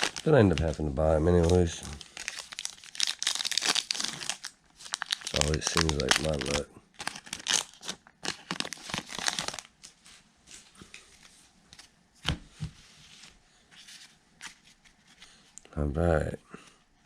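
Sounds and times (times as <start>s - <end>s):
wrapper crinkling and tearing: 0.0s - 10.0s.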